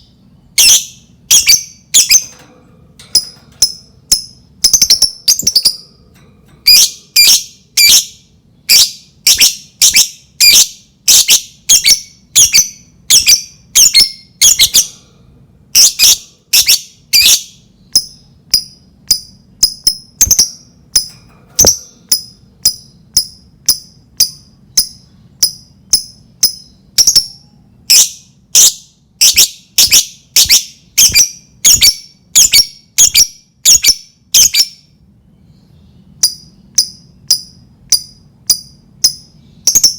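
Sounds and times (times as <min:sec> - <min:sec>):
lovebird shrill chattering calls: 0:06.6 - 0:14.9.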